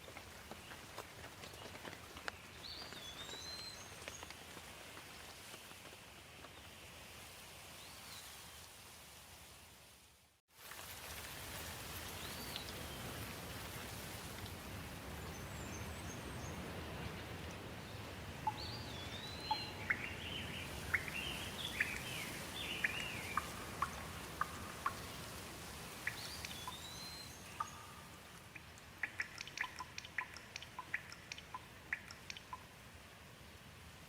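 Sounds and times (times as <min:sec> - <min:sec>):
steady rain falling: 0:00.0 - 0:34.0
small birds chirping: 0:15.1 - 0:32.7.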